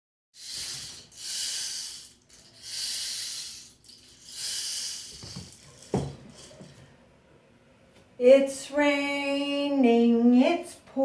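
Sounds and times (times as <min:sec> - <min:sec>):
hissing breaths through mouth: 0:00.4 - 0:05.4.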